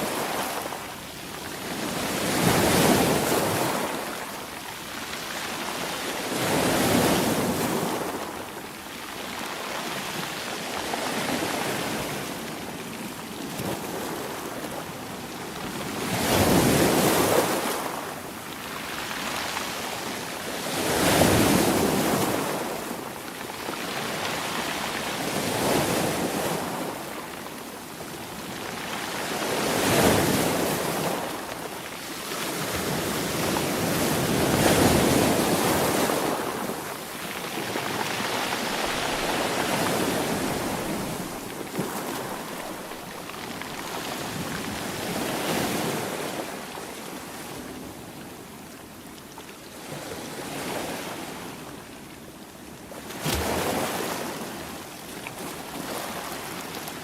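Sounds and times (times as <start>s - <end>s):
sea waves breaking: 32.4s - 47.6s.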